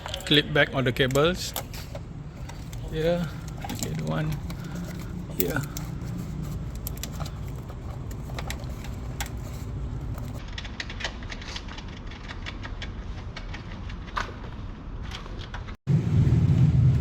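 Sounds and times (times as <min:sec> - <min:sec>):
plastic cable clips clicking: 0:01.0 - 0:10.9
steady low rumble: 0:15.9 - 0:17.0.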